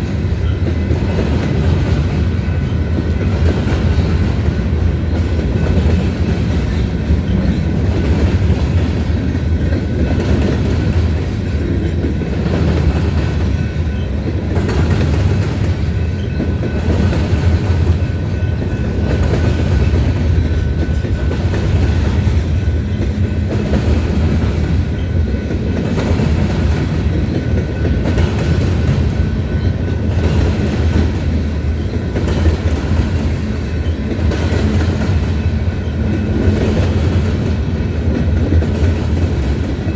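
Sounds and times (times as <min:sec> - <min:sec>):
freight train rumble: 0:00.0 - 0:39.9
wheels clickety-clack on rail joints: 0:00.0 - 0:39.9.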